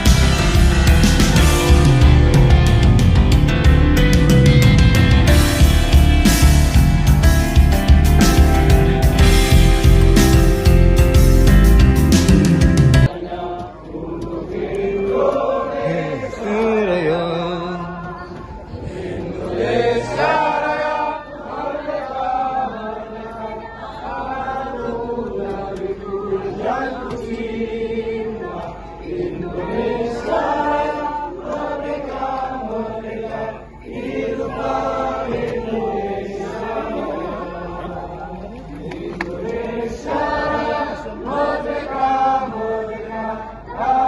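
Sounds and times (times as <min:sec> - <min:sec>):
group of voices chanting: 0:13.0 - 0:44.0.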